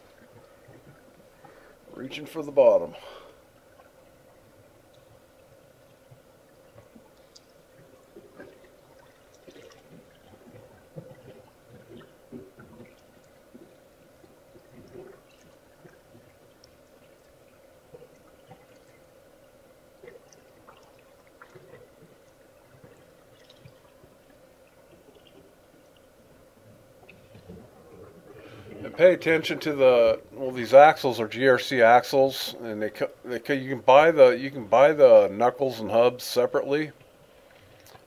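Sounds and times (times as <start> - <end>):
trickling and dripping water: 0.0 - 33.8, 37.0 - 38.0.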